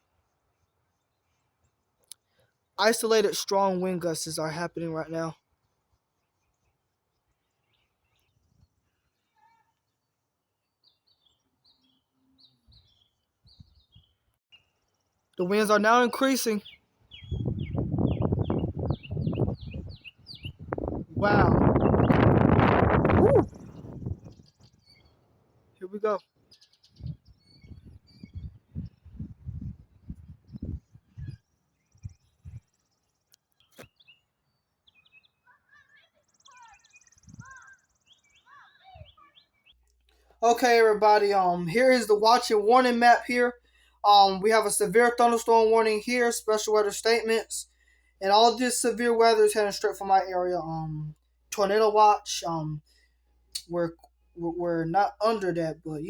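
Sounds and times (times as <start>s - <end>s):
faint bird chirping: 5.6s - 22.3s, 25.8s - 42.7s
wind rumble on microphone: 13.5s - 14.1s, 17.1s - 25.1s, 26.8s - 32.6s, 37.2s - 37.6s.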